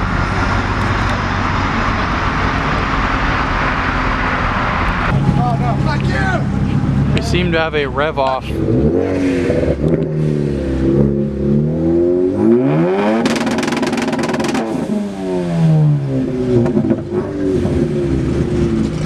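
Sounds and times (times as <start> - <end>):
engine rattling crackle: 0.0 - 10.3, 13.2 - 15.2, 16.6 - 19.0
car engines revving: 0.0 - 19.0.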